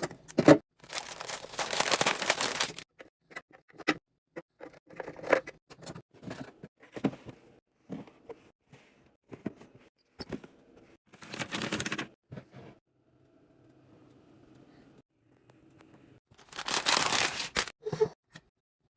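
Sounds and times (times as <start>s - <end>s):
packaging rustling: 0.8s - 2.8s, 16.4s - 17.7s.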